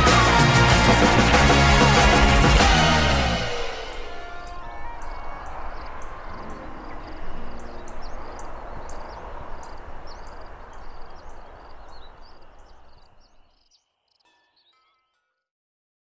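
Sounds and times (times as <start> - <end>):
outdoor hiss: 0.0 - 13.5
small birds chirping: 3.4 - 15.0.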